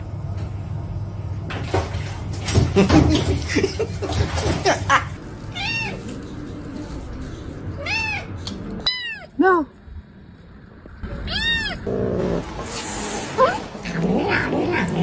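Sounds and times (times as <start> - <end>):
cat meowing: 5.5 - 6.2, 7.8 - 9.4, 11.0 - 11.9
voice-like sounds: 12.1 - 15.0.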